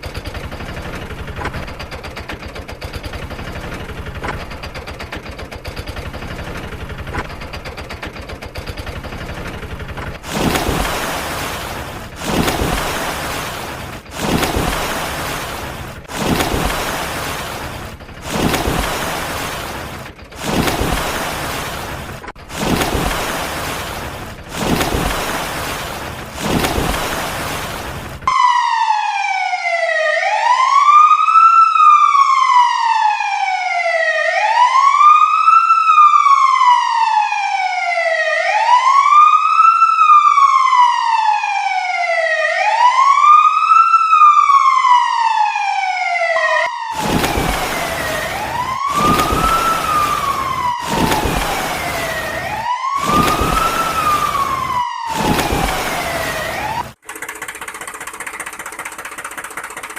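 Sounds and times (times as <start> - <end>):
electronic siren wailing: 28.3 - 57.0.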